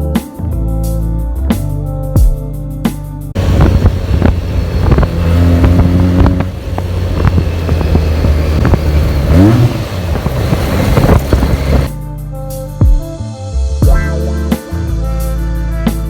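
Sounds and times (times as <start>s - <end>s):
motorcycle engine revving: 3.4s - 11.9s.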